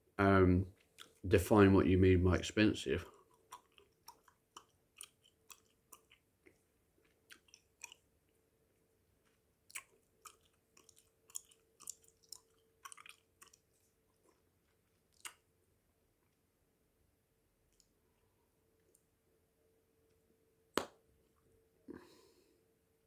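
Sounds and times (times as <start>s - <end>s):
gum chewing mouth clicks: 0.8s - 1.2s, 3.1s - 8.1s, 9.2s - 15.5s.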